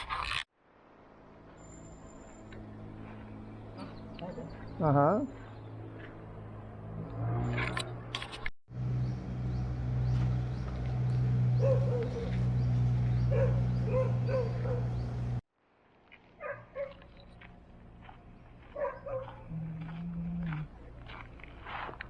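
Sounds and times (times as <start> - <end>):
steady low hum: 8.7 - 15.4.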